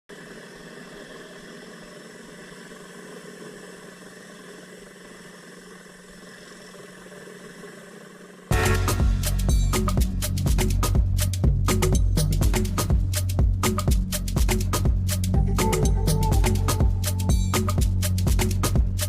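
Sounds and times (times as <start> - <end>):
loud music: 8.5 - 19.0.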